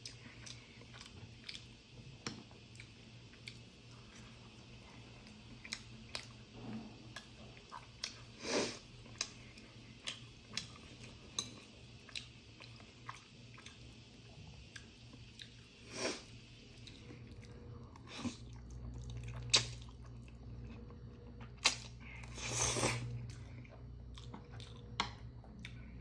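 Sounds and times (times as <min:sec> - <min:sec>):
chewing noodles: 0:00.0 - 0:01.7, 0:09.0 - 0:14.0, 0:16.7 - 0:26.0.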